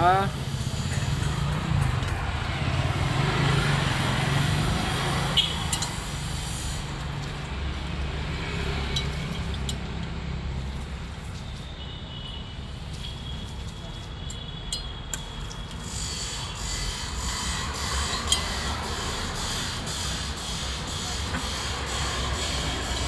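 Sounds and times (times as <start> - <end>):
vehicle engine running: 18.2 - 23.0.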